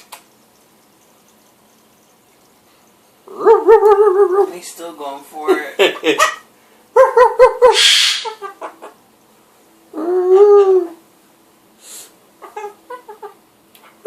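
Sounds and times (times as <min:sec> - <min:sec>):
pet animal calling: 0:07.0 - 0:09.0, 0:12.4 - 0:13.4
hissing screech: 0:07.8 - 0:08.3.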